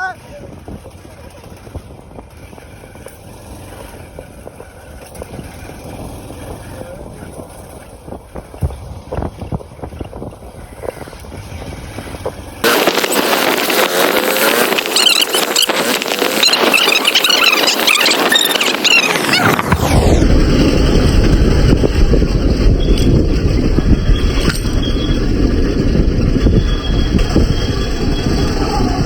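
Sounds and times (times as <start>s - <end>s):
motorcycle engine rumble: 0.0s - 29.0s
quick high wavering squeals: 12.7s - 20.2s, 22.6s - 29.0s.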